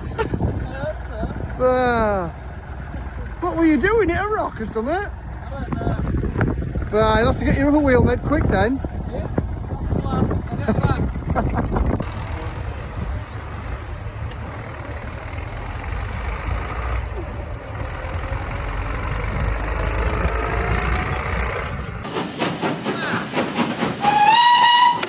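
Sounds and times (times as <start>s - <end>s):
low rumble: 0.0s - 14.6s
steam engine hissing: 11.9s - 25.0s.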